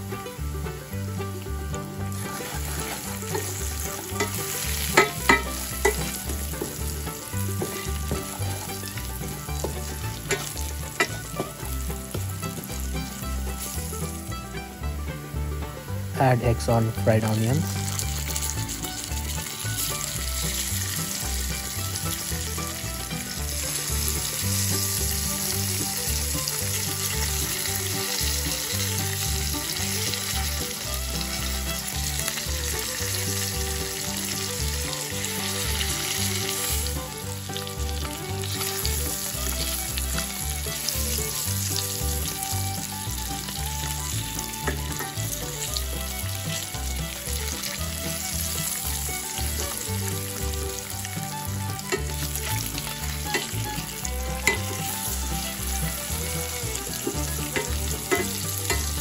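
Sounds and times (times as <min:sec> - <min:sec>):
eggs sizzling in hot oil: 0:00.0 - 0:59.0.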